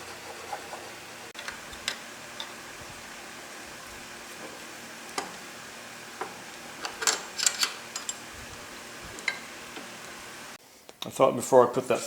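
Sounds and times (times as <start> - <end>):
metal parts clicking: 6.8 - 8.2.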